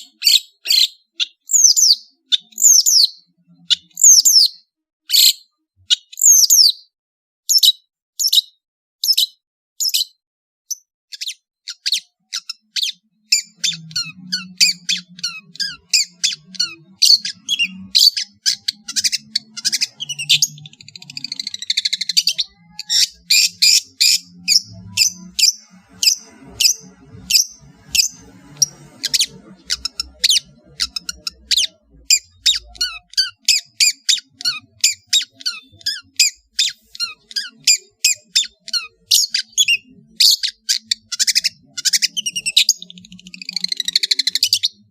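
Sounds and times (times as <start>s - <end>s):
shrike singing: 12.6s - 44.8s.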